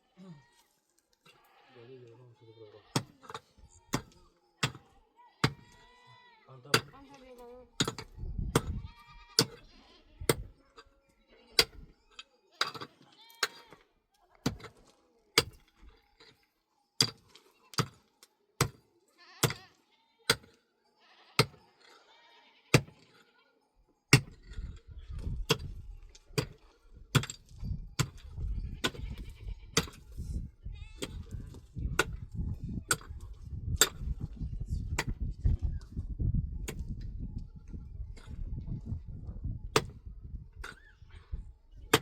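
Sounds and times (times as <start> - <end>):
goats and sheep bleating: 0.0 - 4.2, 5.1 - 6.6, 8.6 - 10.3, 12.9 - 13.9, 19.1 - 20.4, 21.0 - 23.6, 28.5 - 29.8, 30.6 - 31.4.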